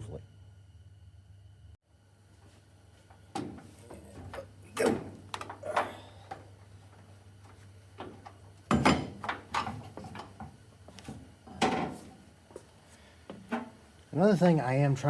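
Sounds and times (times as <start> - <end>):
low steady hum: 0.0 - 15.0
tools and metal parts clunking: 3.3 - 12.2, 13.4 - 13.8.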